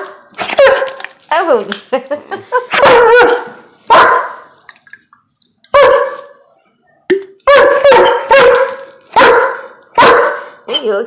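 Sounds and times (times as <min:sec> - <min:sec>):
dog barking: 0:00.0 - 0:01.0, 0:02.7 - 0:04.5, 0:05.7 - 0:06.4, 0:07.4 - 0:10.8.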